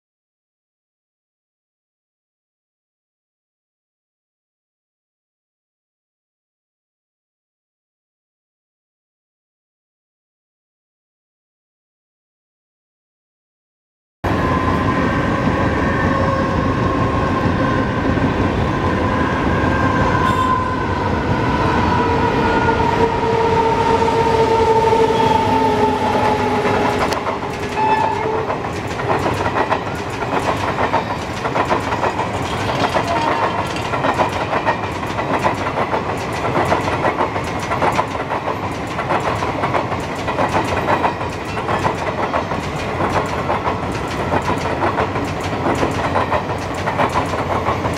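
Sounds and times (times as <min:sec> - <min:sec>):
train horn toot: 0:14.3 - 0:28.6, 0:32.5 - 0:33.8
locomotive horn blast: 0:15.8 - 0:18.0, 0:19.2 - 0:21.1, 0:22.0 - 0:28.6
train wheels clattering on rails: 0:21.4 - 0:47.9.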